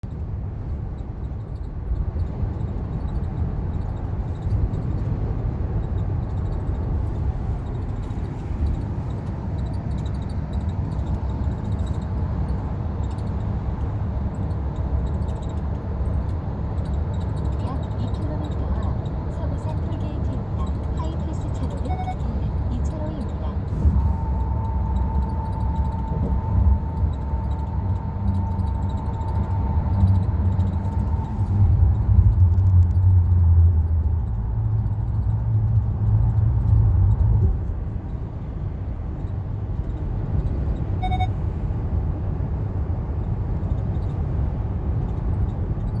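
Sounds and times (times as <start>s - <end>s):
car road rumble: 0.0s - 46.0s
short beep: 21.6s - 22.5s, 41.0s - 41.4s.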